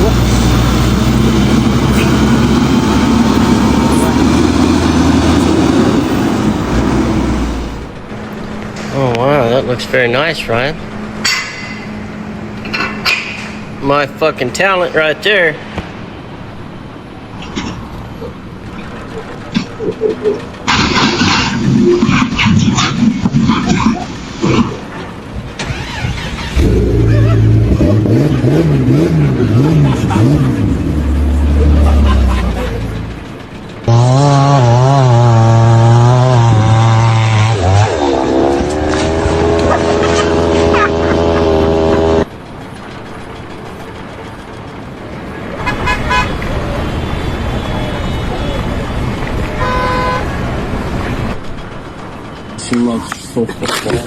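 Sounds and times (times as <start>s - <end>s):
engine revving: 0.0s - 16.0s, 18.7s - 42.4s
vehicle horn honking: 45.6s - 48.4s, 49.6s - 50.4s.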